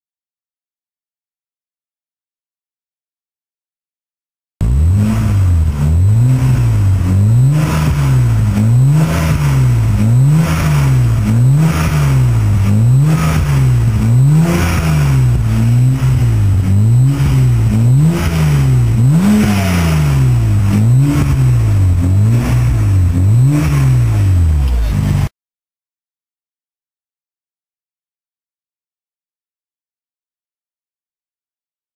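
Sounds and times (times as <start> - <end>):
car engine revving raspy: 4.6 - 25.3.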